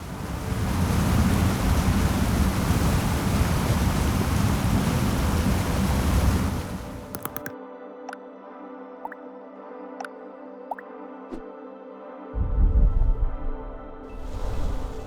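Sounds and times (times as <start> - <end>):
waterfall rushing: 0.0 - 7.5.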